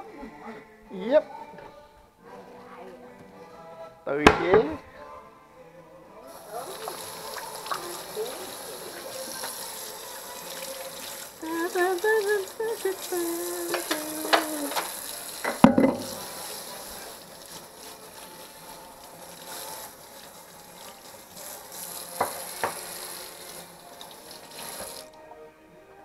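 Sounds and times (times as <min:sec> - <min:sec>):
hot oil sizzling in a pan: 0:06.2 - 0:25.1
knocks: 0:15.5 - 0:16.1.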